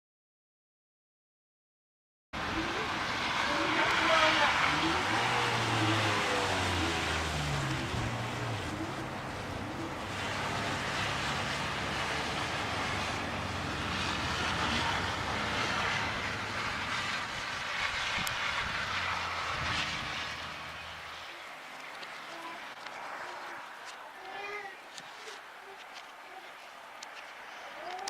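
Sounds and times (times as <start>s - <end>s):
blizzard wind gusts: 2.4s - 24.2s.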